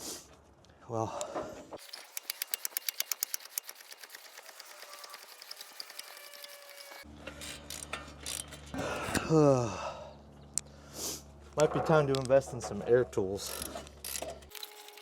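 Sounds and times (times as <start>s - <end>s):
hand ratchet clicking: 1.8s - 8.7s, 13.4s - 15.0s
man groaning: 9.1s - 10.1s.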